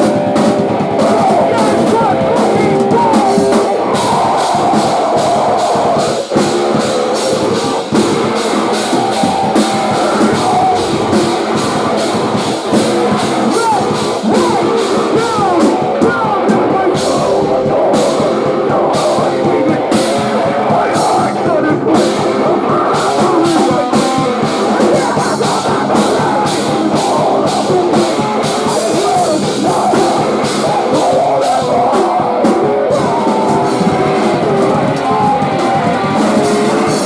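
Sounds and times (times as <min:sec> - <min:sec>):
drum kit: 0:00.0 - 0:37.0
electric guitars: 0:00.0 - 0:37.0.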